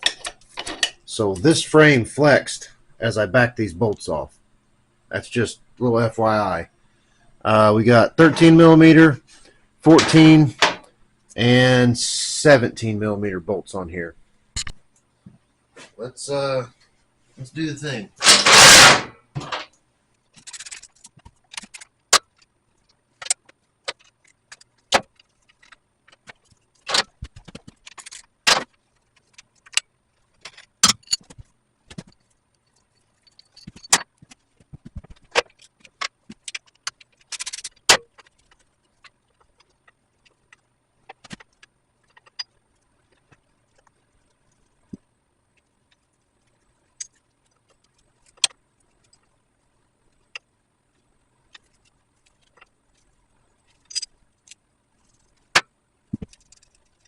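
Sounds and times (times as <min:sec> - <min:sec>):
loud metal rattle: 0:18.2 - 0:19.6
wrenches clinking on metal: 0:18.2 - 0:19.7, 0:20.4 - 0:21.9, 0:35.6 - 0:38.0, 0:53.8 - 0:54.1.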